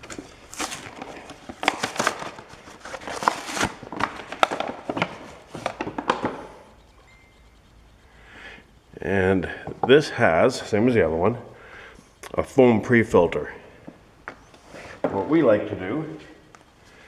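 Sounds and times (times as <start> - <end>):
air filter crinkling: 0.0 - 6.9.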